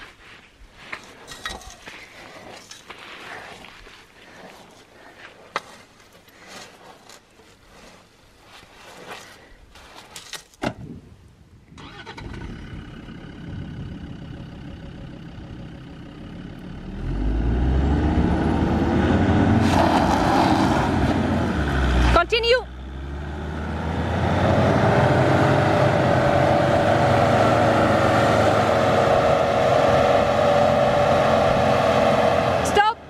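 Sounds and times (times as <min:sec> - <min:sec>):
hands scraping sand: 0:00.0 - 0:10.3
vehicle engine running and revving: 0:12.8 - 0:32.9.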